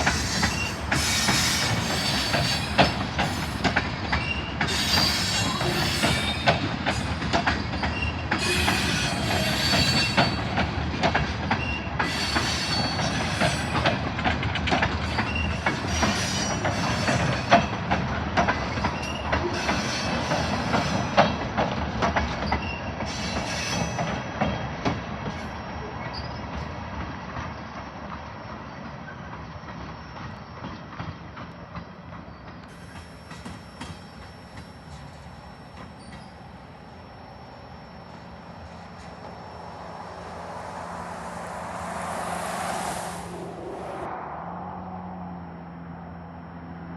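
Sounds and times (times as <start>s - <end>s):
high wheel squeal: 0.0s - 10.7s, 11.5s - 14.0s, 32.7s - 44.1s
train cars rolling on rails: 0.0s - 44.1s.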